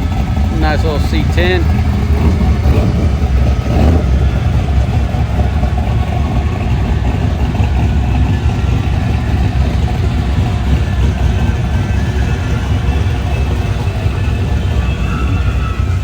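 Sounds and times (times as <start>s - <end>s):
car engines idling: 0.0s - 16.0s.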